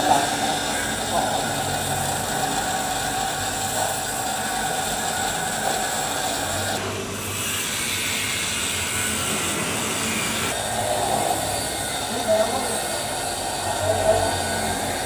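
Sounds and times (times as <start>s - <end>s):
metal lathe machining: 0.0s - 15.0s.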